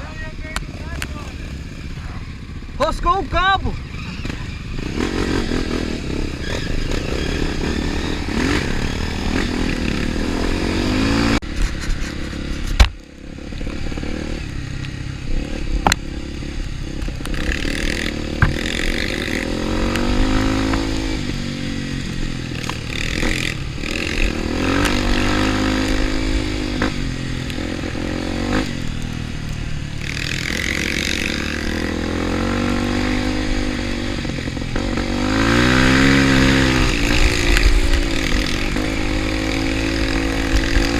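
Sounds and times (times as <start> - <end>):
motorcycle engine revving: 0.0 - 40.9
sharp knocks: 18.3 - 18.7.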